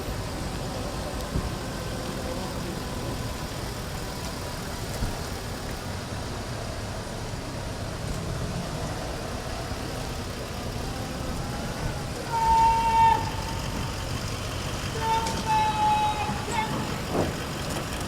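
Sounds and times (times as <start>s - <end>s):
vehicles idling rumble: 0.0s - 18.0s
short horn toot: 15.0s - 17.2s.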